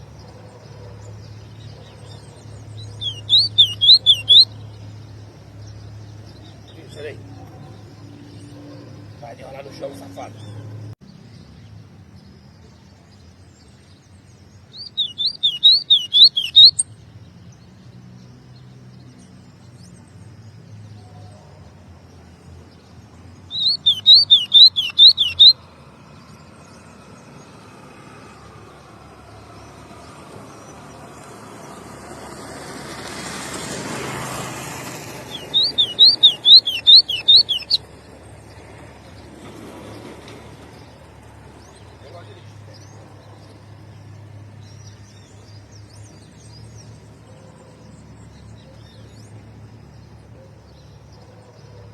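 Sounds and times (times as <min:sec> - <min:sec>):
bird singing sharp high notes: 0:01.4 - 0:04.9, 0:14.8 - 0:16.9, 0:23.5 - 0:25.6, 0:35.2 - 0:37.9
broad noise: 0:23.5 - 0:25.6, 0:35.1 - 0:37.8.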